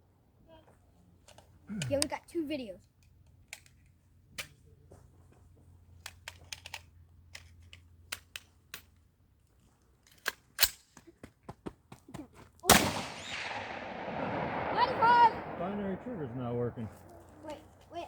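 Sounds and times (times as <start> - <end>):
rifle action clicks and rattles: 2.8 - 4.6, 5.9 - 9.1, 10.0 - 11.0.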